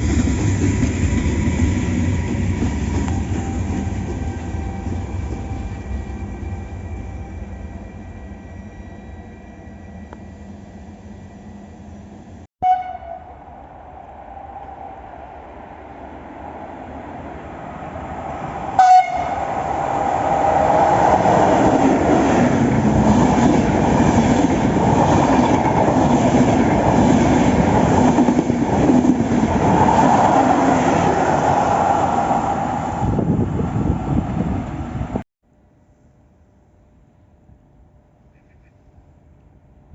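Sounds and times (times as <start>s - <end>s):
train passing: 0.0s - 35.2s
train horn blast: 12.6s - 13.5s, 18.8s - 19.6s.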